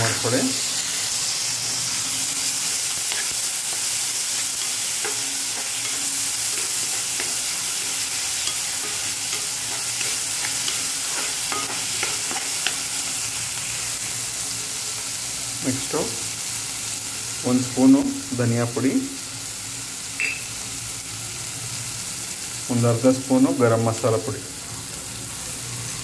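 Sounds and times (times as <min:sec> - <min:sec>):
vegetables sizzling in hot oil: 0:00.0 - 0:26.0
metal spoon stirring and scraping: 0:01.9 - 0:13.2.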